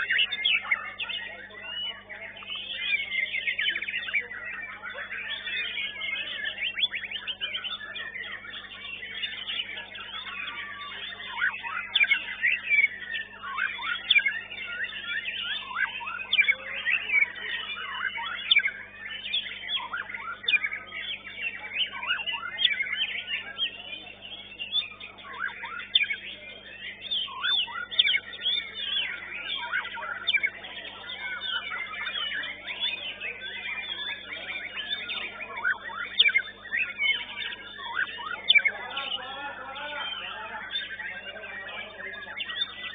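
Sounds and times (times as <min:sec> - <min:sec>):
songbirds singing: 0:00.0 - 0:42.9.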